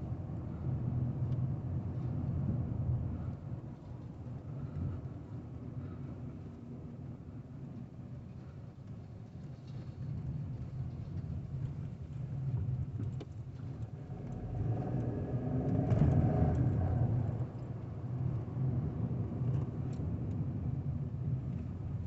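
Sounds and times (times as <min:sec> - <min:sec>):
car engine revving: 0:14.0 - 0:17.6.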